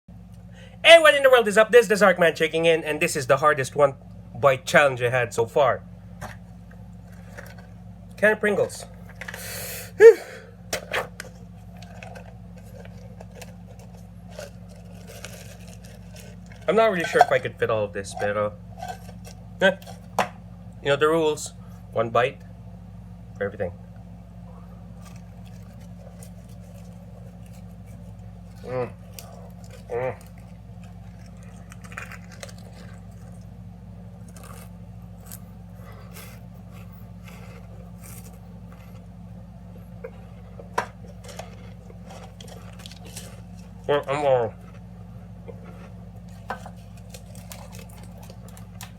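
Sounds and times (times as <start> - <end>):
steady low hum: 0.1 - 48.9
chewing crisps crunches: 10.8 - 20.2, 24.9 - 39.1, 40.1 - 44.9, 45.5 - 48.9.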